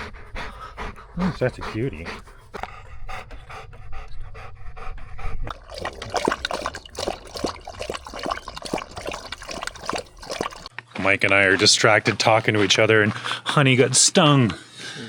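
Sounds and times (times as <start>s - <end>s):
dog panting: 0.0s - 10.7s.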